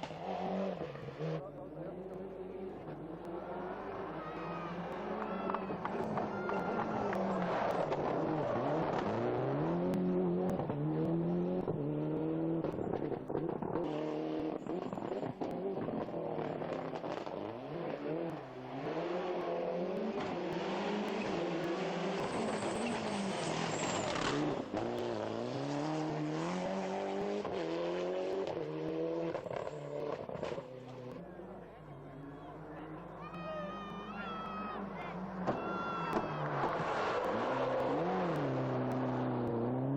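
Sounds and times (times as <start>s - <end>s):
tyre and road noise: 0.0s - 39.9s
car engine revving hard: 7.0s - 31.2s, 36.4s - 39.9s.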